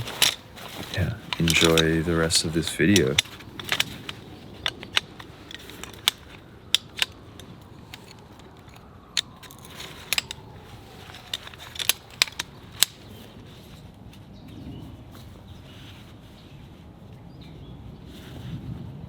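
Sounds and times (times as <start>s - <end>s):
sharp clicks and snaps: 2.9s - 10.4s, 11.1s - 13.1s.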